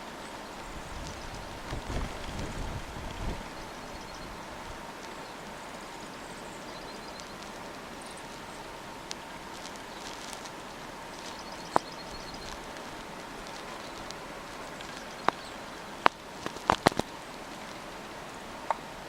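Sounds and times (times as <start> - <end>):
snowstorm hiss: 0.0 - 19.0
small bird trill: 3.5 - 4.4, 5.1 - 8.7, 9.6 - 12.8, 13.4 - 16.2.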